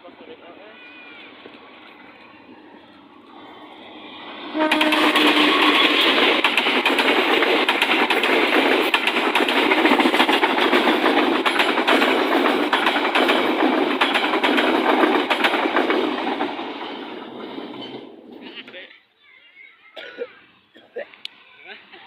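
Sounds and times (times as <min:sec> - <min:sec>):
train engine: 0:00.0 - 0:18.8
train wheels clattering on rails: 0:04.6 - 0:18.5.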